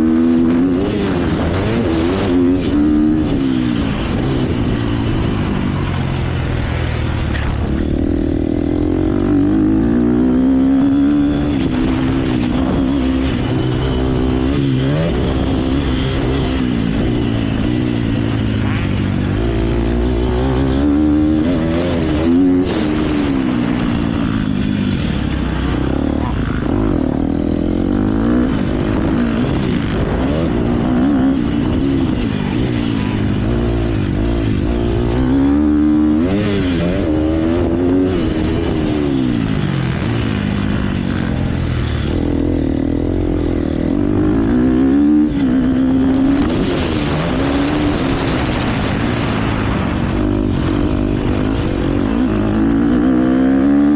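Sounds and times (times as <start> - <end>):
motocross bike engine revving: 0.0 - 53.9
wind rush on microphone: 20.5 - 53.9.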